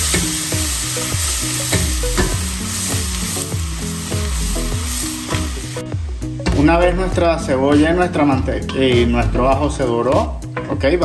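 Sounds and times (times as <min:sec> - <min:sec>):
onion and garlic sizzling: 0:00.0 - 0:08.0
music with bass beat: 0:00.0 - 0:11.0.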